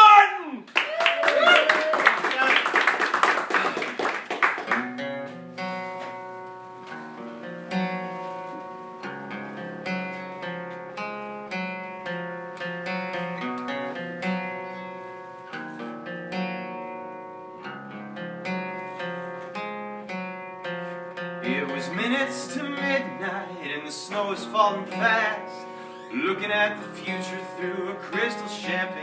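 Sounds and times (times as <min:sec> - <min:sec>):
applause: 0:00.7 - 0:05.0
acoustic guitar picking: 0:04.7 - 0:29.0.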